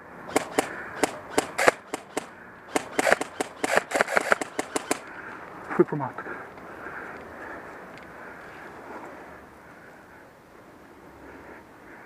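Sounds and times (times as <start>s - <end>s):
airsoft guns firing: 0.3s - 5.1s.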